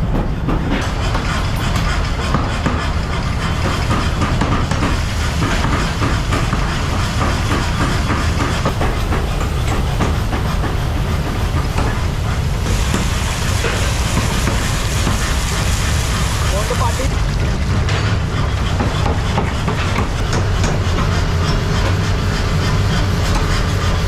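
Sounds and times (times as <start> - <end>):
machinery rattling clatter: 0.0 - 24.0.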